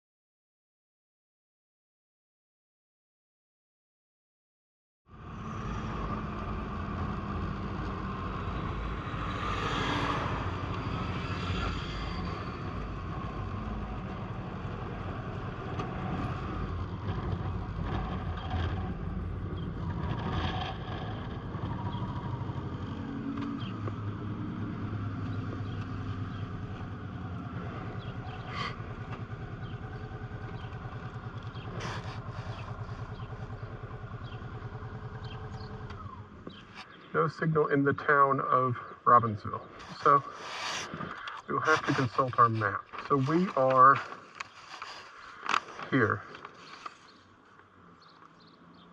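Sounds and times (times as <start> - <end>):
motorcycle engine running: 10.5 - 36.8.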